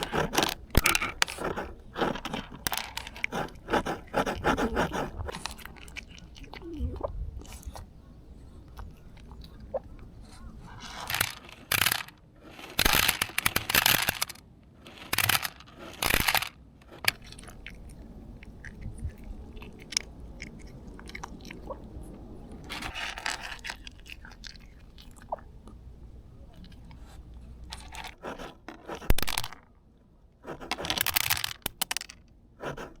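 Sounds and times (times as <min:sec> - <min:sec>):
cat crunching dry food: 0:00.0 - 0:06.6, 0:10.3 - 0:25.5, 0:26.5 - 0:29.7, 0:30.5 - 0:32.9
cat gulping: 0:00.0 - 0:07.9, 0:24.0 - 0:25.9.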